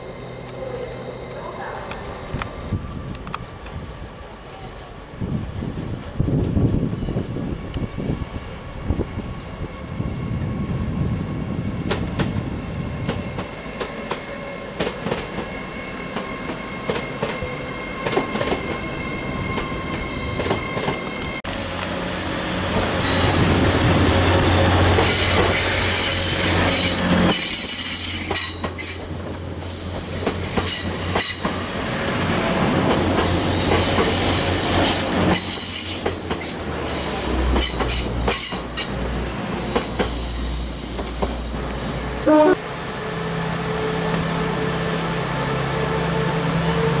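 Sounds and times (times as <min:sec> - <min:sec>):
low train hum: 0:00.0 - 0:47.0
train wheels squealing on rails: 0:04.4 - 0:06.0, 0:06.7 - 0:10.4, 0:13.0 - 0:42.3.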